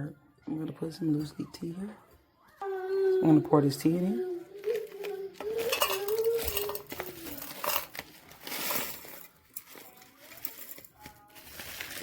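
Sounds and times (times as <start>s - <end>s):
loose tea rustling into teapot: 5.5s - 12.0s.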